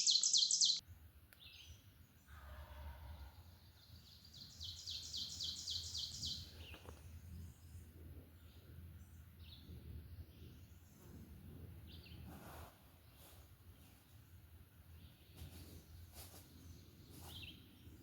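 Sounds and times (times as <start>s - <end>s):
songbird singing high notes: 0.0s - 0.8s.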